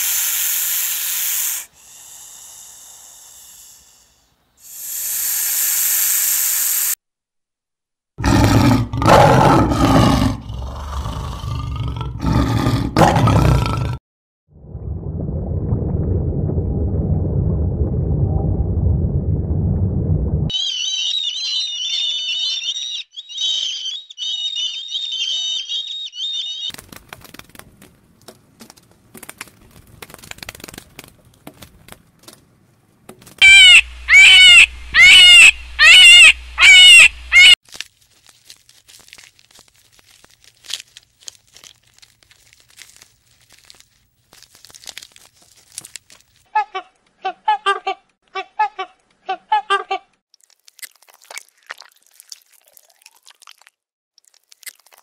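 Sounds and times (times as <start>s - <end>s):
high bird twittering: 20.5s - 26.7s, 33.4s - 37.6s
loud rising and falling bird calls: 20.5s - 26.7s, 33.4s - 37.6s.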